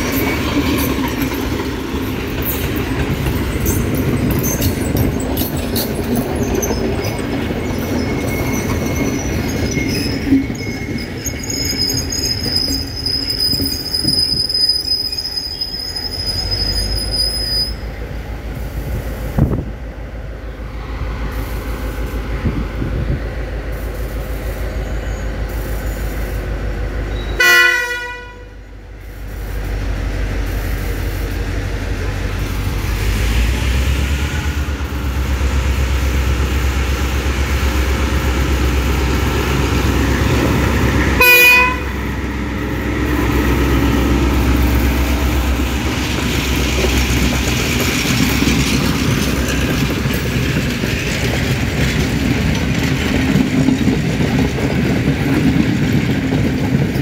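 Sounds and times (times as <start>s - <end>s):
wheels clattering over rails: 0.0s - 14.4s, 32.0s - 57.0s
diesel locomotive rumble: 0.0s - 57.0s
train horn: 27.2s - 28.6s, 41.1s - 42.0s.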